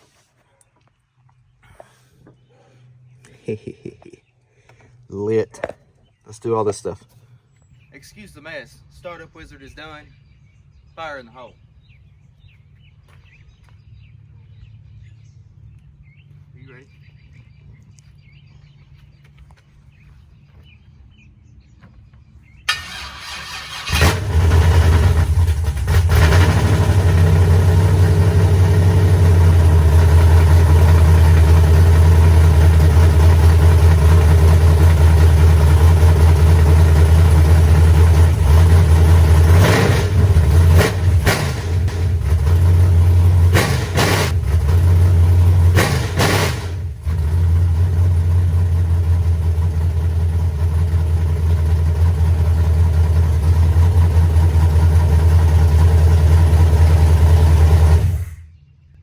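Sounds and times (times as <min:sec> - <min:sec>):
engine cranking: 0:22.7 - 0:58.4
engine running loud: 0:22.7 - 0:58.5.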